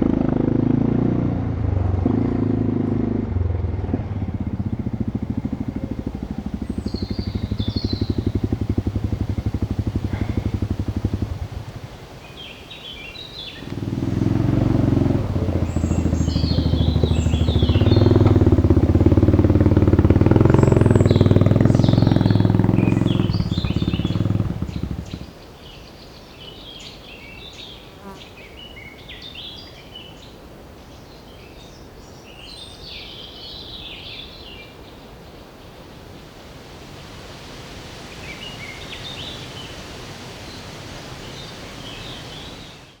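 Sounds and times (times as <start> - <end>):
quad bike engine running: 0.0 - 25.4
birds chirping: 3.6 - 36.4, 38.0 - 43.0.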